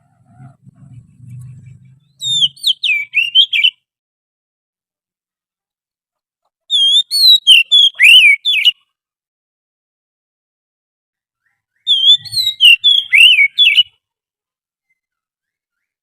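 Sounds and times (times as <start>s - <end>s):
bird whistled song: 0.4s - 3.8s, 6.7s - 8.8s, 11.4s - 14.0s.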